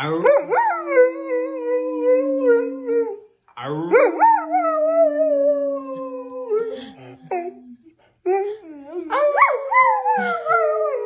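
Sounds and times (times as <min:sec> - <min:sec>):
dog howling: 0:08.9 - 0:11.0.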